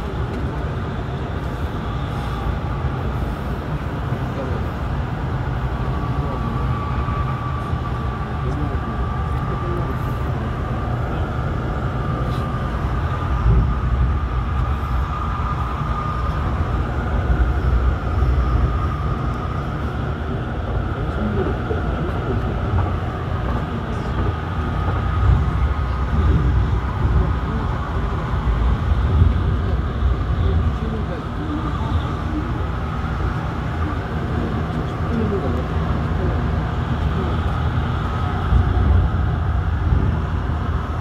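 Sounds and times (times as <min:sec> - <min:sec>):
thin steady whine: 0:00.0 - 0:41.0
wheels rumbling on track: 0:00.0 - 0:41.0.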